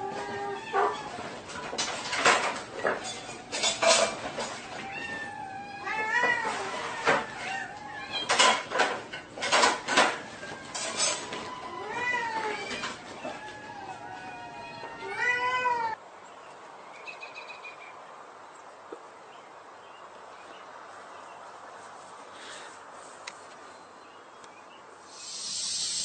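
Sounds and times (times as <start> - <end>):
cat meowing: 0.0 - 1.4, 4.7 - 8.4, 10.0 - 16.0.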